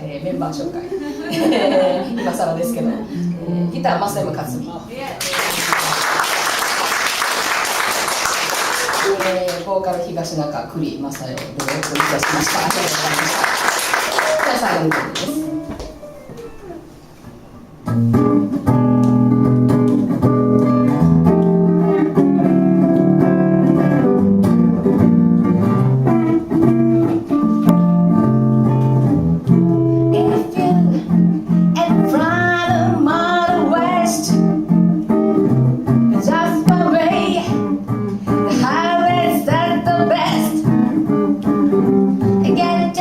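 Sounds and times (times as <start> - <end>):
guitar playing: 1.6 - 4.9, 12.5 - 43.0
person singing: 30.1 - 34.5.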